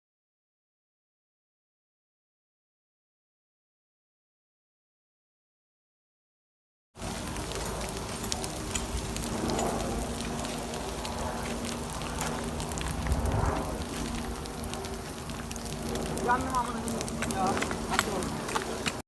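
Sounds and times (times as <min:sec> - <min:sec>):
fire rushing and crackling: 0:07.0 - 0:19.0.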